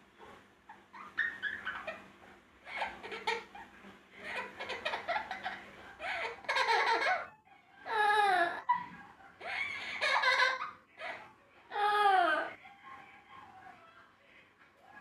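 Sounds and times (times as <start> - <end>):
parrot mimicking laughter: 0.7 - 2.0, 2.6 - 7.3.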